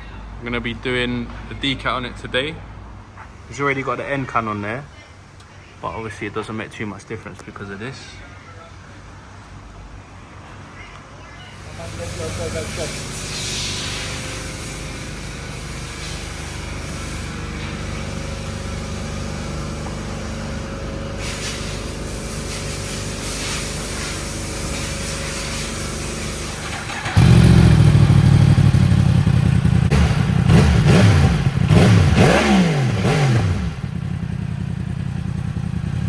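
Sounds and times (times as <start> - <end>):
motorcycle engine idling and revving: 11.6 - 36.0.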